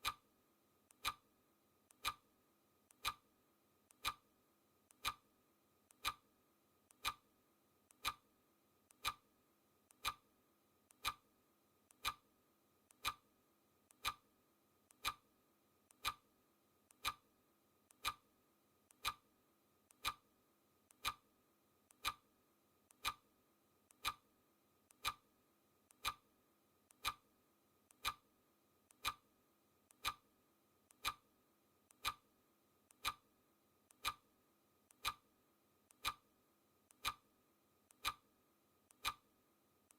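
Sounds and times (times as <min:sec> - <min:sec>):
clock ticking: 0:00.0 - 0:00.2, 0:00.9 - 0:01.2, 0:01.9 - 0:02.3, 0:02.9 - 0:03.2, 0:03.9 - 0:04.3, 0:04.9 - 0:05.3, 0:05.9 - 0:06.3, 0:06.9 - 0:07.2, 0:07.9 - 0:08.2, 0:08.9 - 0:09.3, 0:09.9 - 0:10.2, 0:10.9 - 0:11.2, 0:11.9 - 0:12.3, 0:12.9 - 0:13.2, 0:13.9 - 0:14.3, 0:14.9 - 0:15.3, 0:15.9 - 0:16.3, 0:16.9 - 0:17.3, 0:17.9 - 0:18.3, 0:18.9 - 0:19.3, 0:19.9 - 0:20.3, 0:20.9 - 0:21.3, 0:21.9 - 0:22.3, 0:22.9 - 0:23.3, 0:23.9 - 0:24.3, 0:24.9 - 0:25.3, 0:25.9 - 0:26.3, 0:26.9 - 0:27.3, 0:27.9 - 0:28.3, 0:28.9 - 0:29.3, 0:29.9 - 0:30.3, 0:30.9 - 0:31.3, 0:31.9 - 0:32.3, 0:32.9 - 0:33.3, 0:33.9 - 0:34.3, 0:34.9 - 0:35.3, 0:35.9 - 0:36.3, 0:36.9 - 0:37.3, 0:37.9 - 0:38.3, 0:38.9 - 0:39.3.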